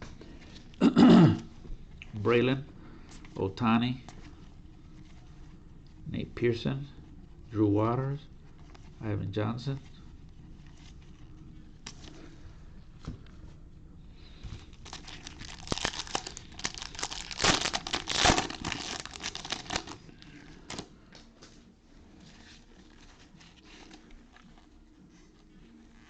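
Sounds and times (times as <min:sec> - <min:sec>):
foil wrapper tearing and crinkling: 0:14.6 - 0:20.1.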